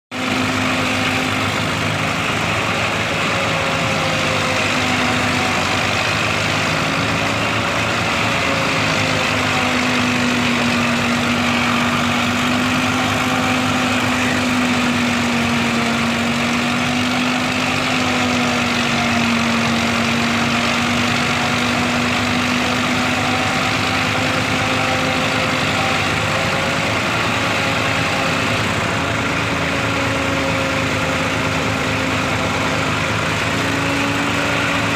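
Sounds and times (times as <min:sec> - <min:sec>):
silage machine engine humming: 0:00.1 - 0:34.9.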